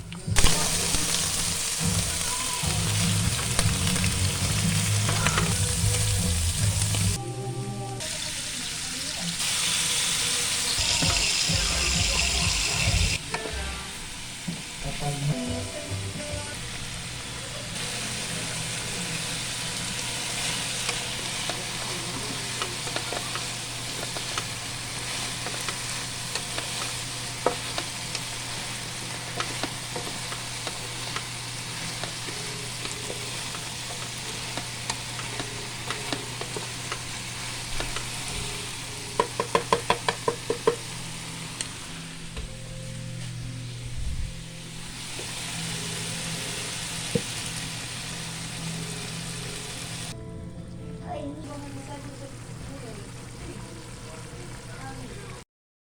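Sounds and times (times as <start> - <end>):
food sizzling in a frying pan: 0.4 - 7.2, 8.0 - 50.2, 51.4 - 55.4
utensil clicking against pan: 20.8 - 28.5, 29.2 - 38.2, 39.1 - 40.9.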